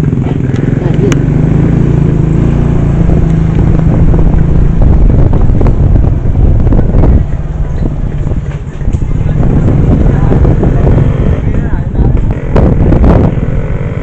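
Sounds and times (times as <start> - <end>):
small engine running: 0.0 - 5.6.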